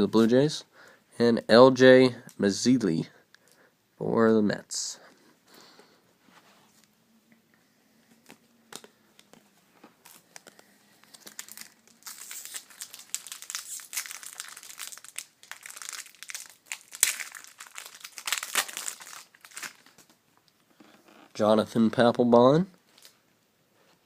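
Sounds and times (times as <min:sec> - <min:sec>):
card pack wrapper crinkling: 0:10.0 - 0:20.1.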